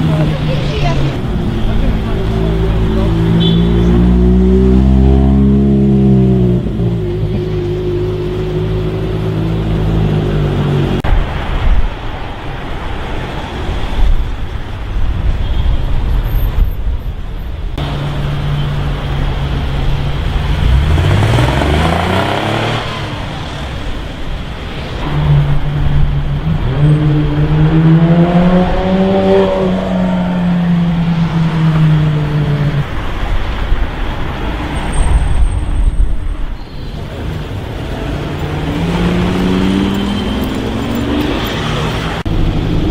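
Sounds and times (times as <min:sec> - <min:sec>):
car engine revving: 0:00.0 - 0:11.1, 0:17.8 - 0:33.0, 0:37.1 - 0:42.9
traffic noise: 0:00.0 - 0:42.9.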